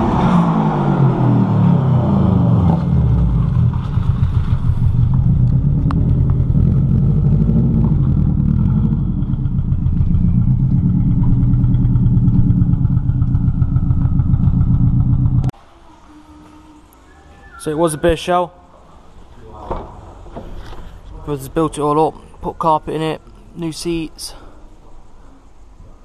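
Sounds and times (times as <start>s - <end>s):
car engine running at low revs: 0.0s - 15.5s.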